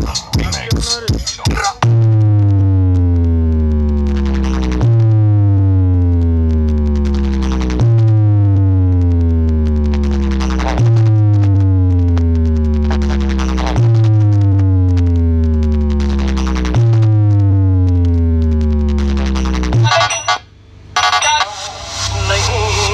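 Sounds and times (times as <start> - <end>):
sliding synthesizer bass: 1.8 - 22.9.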